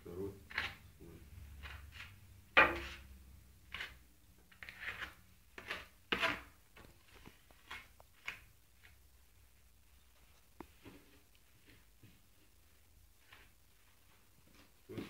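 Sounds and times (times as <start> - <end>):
plastering trowel scraping: 3.7 - 6.6.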